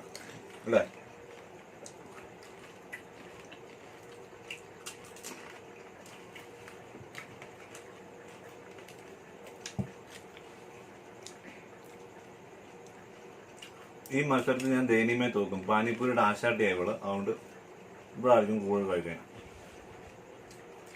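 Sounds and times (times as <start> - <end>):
faint steady hum: 0.0 - 20.9
crisp crunches of biting: 1.2 - 10.6.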